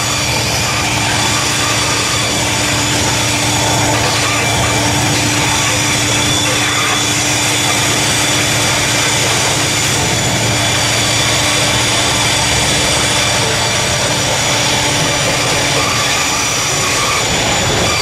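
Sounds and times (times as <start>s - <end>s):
diesel locomotive running: 0.0s - 18.0s
steady high tones: 0.0s - 18.0s.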